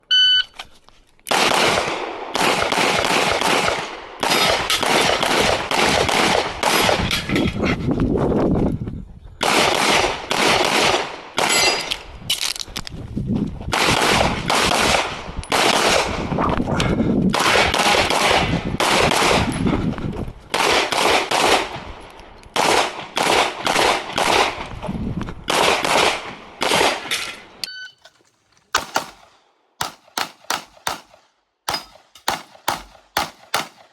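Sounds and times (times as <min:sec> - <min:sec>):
rapid pistol fire: 0:01.3 - 0:07.1, 0:28.7 - 0:33.9.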